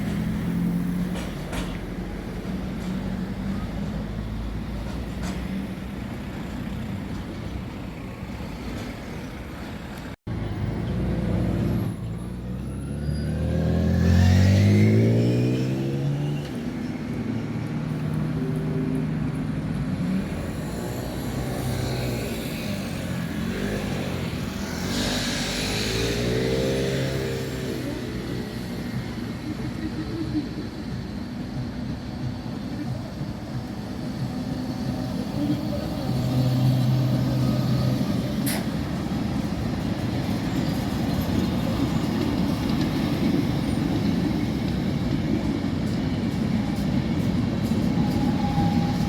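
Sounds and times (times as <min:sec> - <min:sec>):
passing vehicle engines: 0:00.0 - 0:49.0
engine speeding up: 0:10.9 - 0:16.3, 0:20.1 - 0:28.0.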